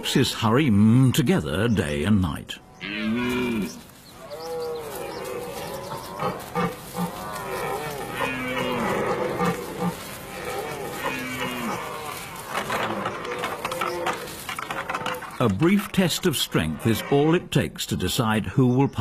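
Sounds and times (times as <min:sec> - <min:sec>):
deer stags roaring: 0:02.8 - 0:15.3.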